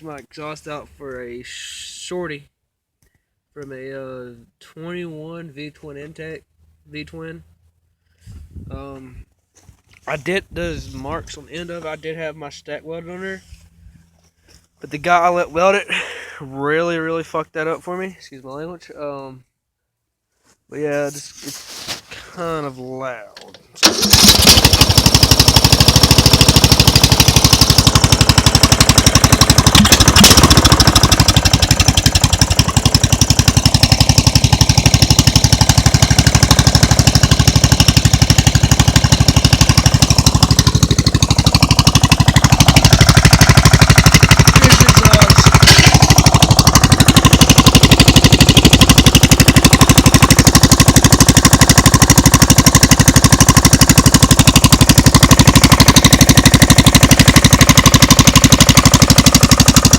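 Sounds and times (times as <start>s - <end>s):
v-twin engine running loud: 23.8s - 59.9s.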